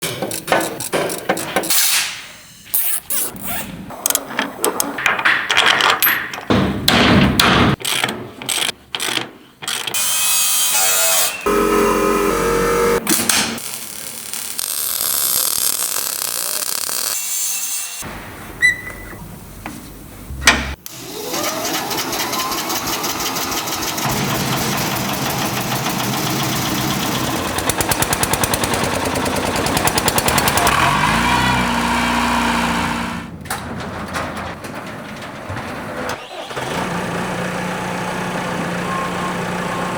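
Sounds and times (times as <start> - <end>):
tool strikes and impacts: 6.3 - 8.3
power tool noise: 10.0 - 14.2, 20.9 - 33.3.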